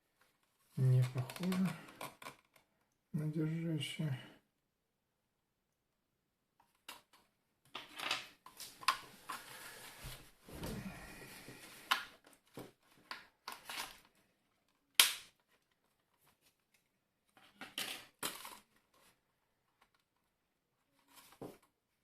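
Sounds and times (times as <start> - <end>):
loud plastic snap: 15.0 - 15.4.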